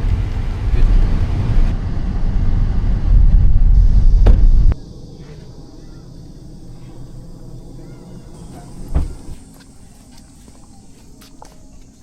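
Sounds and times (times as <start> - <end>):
loud low rumble: 0.0 - 9.3.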